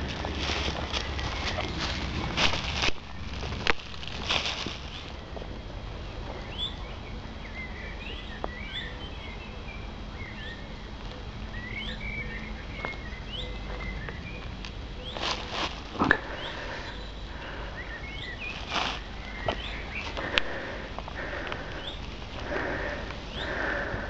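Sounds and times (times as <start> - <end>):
footsteps through undergrowth: 0.0 - 5.6, 12.7 - 24.0
birds chirping: 0.0 - 24.0
low steady rumble: 0.0 - 24.0.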